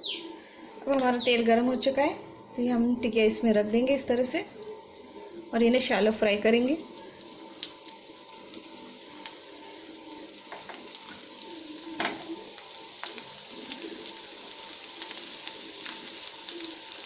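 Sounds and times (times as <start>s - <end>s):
cutlets sizzling in oil: 4.5s - 17.0s
sharp oil crackle: 6.8s - 17.0s.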